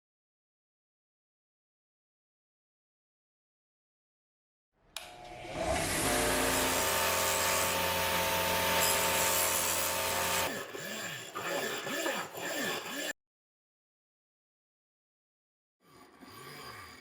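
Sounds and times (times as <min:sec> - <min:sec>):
power tool grinding metal: 0:05.0 - 0:13.2.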